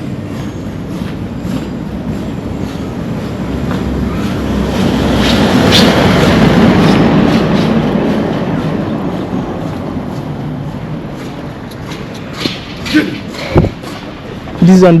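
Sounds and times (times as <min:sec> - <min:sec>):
vehicle passing by: 0:03.5 - 0:09.9.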